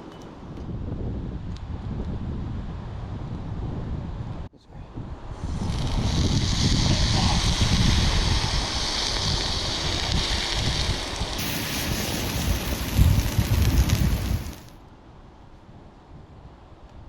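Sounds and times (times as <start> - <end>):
wind buffeting microphone: 0.4 - 14.8
steady rushing hiss: 5.2 - 14.8.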